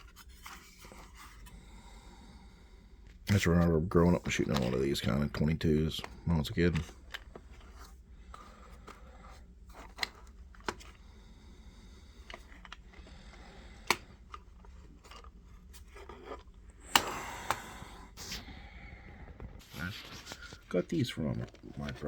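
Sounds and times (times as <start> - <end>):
cardboard boxes rustling: 19.6 - 22.0.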